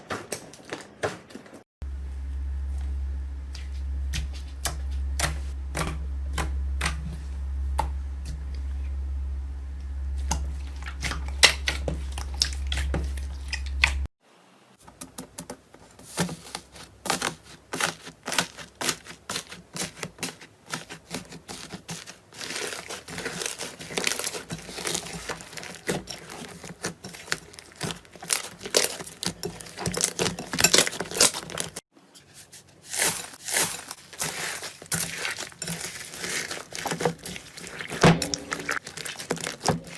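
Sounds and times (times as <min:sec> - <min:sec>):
steady low hum: 0:01.8 - 0:14.1, 0:38.0 - 0:38.8
slime crackling and popping: 0:33.0 - 0:39.9.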